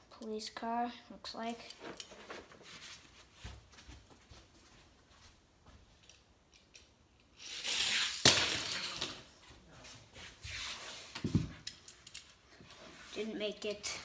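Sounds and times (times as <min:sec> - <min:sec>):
toy car wheels rattling on track: 0:07.4 - 0:09.3.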